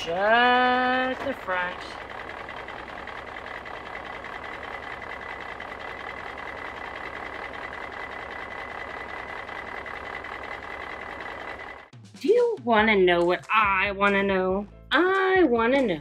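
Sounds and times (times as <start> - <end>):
toy truck mechanical whirring: 0.0 - 11.9.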